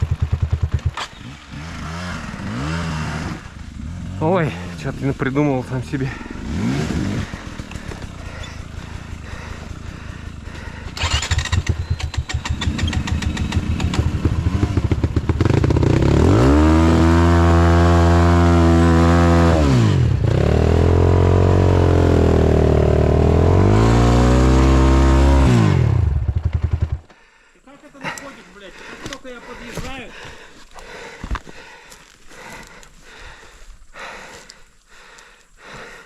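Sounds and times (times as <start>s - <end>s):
motorcycle engine revving: 0.0s - 27.1s.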